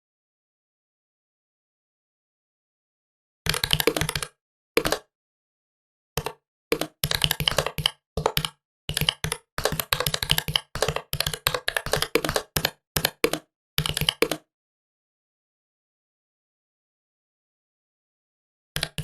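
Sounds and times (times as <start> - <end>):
keyboard typing clicks: 3.5 - 5.1, 6.2 - 14.4, 18.8 - 19.0.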